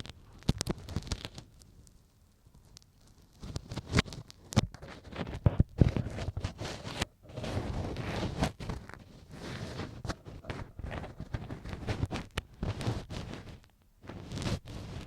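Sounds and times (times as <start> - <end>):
ear pick scraping microphone: 3.4 - 15.0.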